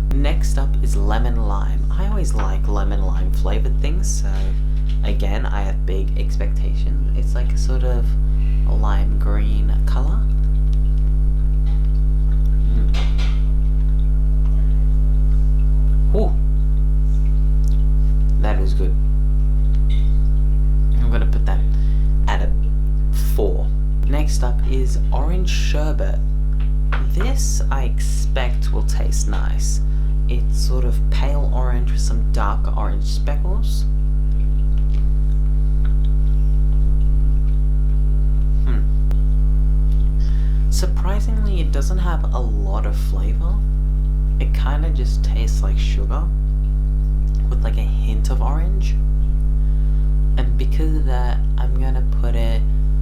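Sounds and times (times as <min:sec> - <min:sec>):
electrical mains hum: 0:00.0 - 0:53.0
person saying ooh: 0:38.7 - 0:38.9.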